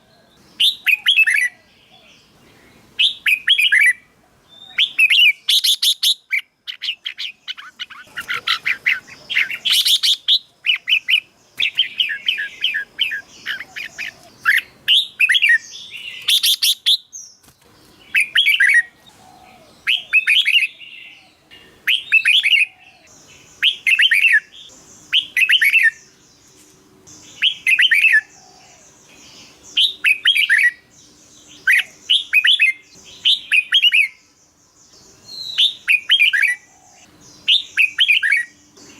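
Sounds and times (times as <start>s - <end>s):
bird singing warbled phrases: 0.0s - 38.9s.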